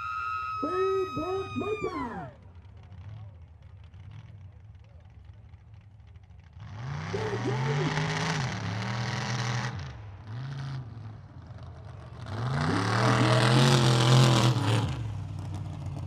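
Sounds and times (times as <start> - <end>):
truck engine revving hard: 6.6 - 15.6.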